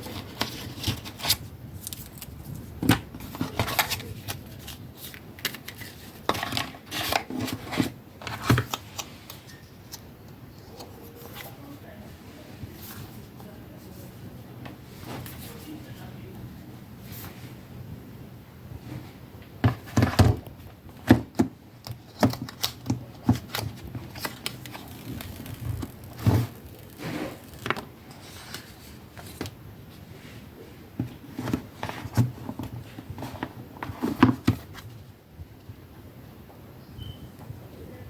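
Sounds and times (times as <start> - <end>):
packaging rustling: 0.0 - 10.0, 21.3 - 29.6.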